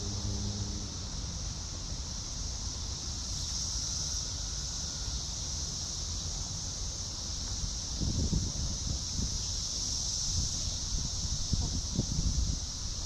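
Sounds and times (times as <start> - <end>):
insect chorus drone: 0.0 - 13.0
wind buffeting microphone: 8.0 - 9.4, 10.3 - 13.0.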